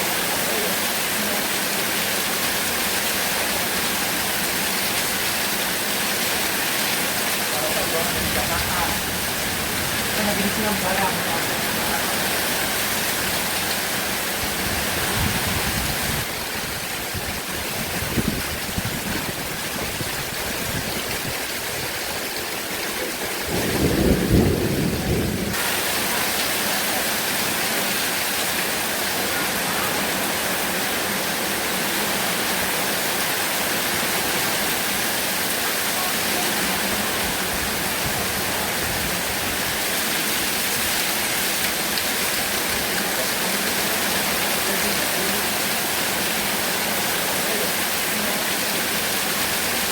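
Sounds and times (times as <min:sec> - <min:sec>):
heavy rain hissing: 0:00.0 - 0:49.9
thunder rumbling: 0:23.3 - 0:25.8.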